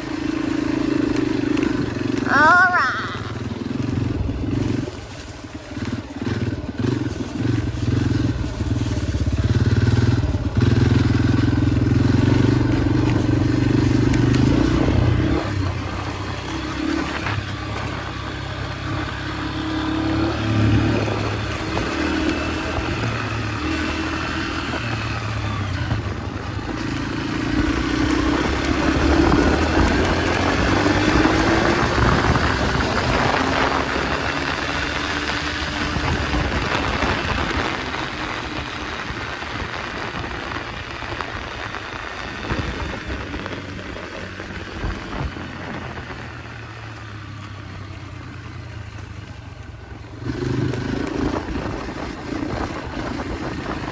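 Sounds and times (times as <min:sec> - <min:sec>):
dirt bike engine revving: 0:00.0 - 0:40.2.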